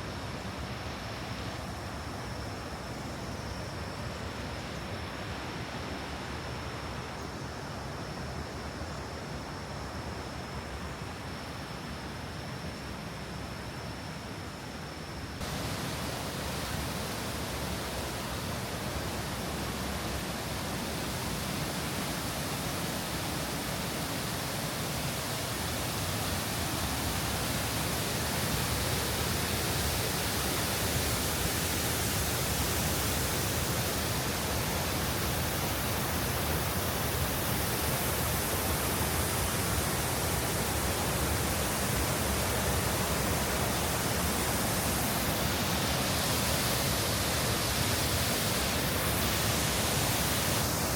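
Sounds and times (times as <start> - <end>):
waterfall rushing: 15.4 - 50.9.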